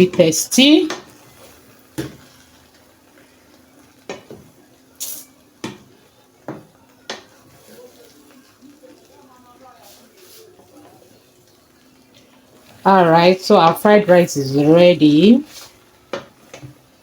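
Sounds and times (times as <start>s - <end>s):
faint hiss: 4.9s - 5.4s.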